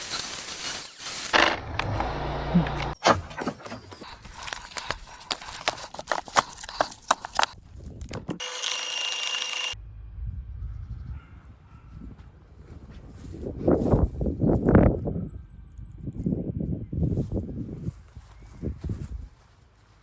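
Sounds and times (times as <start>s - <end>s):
electric motor whine: 1.3s - 3.0s, 8.4s - 9.8s
low motor hum: 1.4s - 3.3s, 8.4s - 12.5s.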